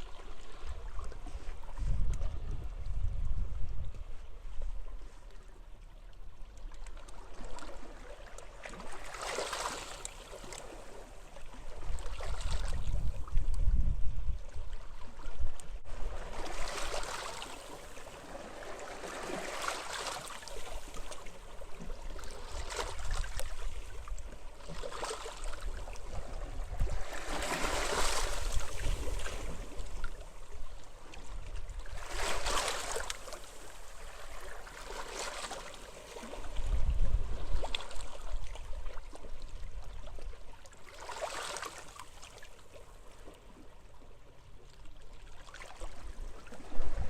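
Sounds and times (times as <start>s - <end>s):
wind rumble on microphone: 0.0s - 5.4s, 11.5s - 17.0s, 25.4s - 32.5s, 36.2s - 40.4s, 45.8s - 47.0s.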